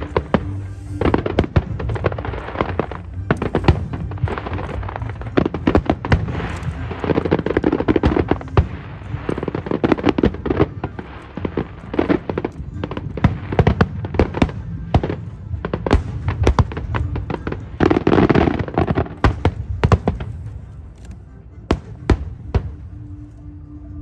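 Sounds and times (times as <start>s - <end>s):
fireworks bangs: 0.0s - 21.0s
fireworks crackling: 0.0s - 23.3s.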